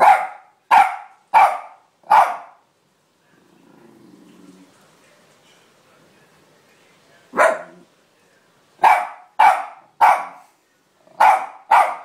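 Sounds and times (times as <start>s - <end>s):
dog barking: 0.0s - 2.6s, 7.4s - 7.8s, 8.8s - 10.5s, 11.1s - 12.0s.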